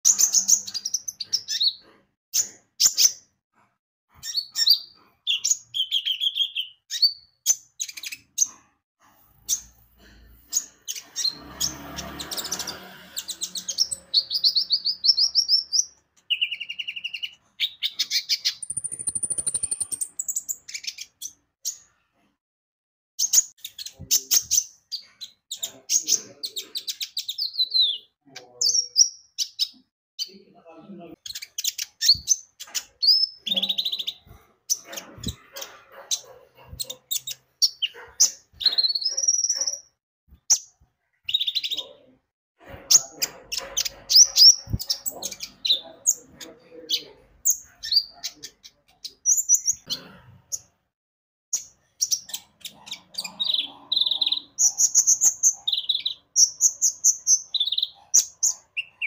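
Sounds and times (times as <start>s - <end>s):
sunbird singing: 13.4s - 20.9s, 52.0s - 59.0s.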